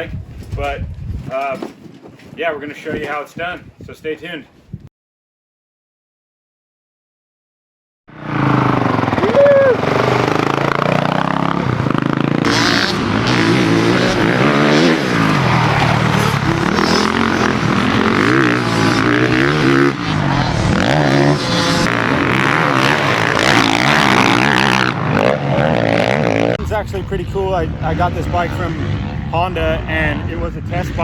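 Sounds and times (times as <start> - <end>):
motorcycle engine revving: 8.1 - 31.0.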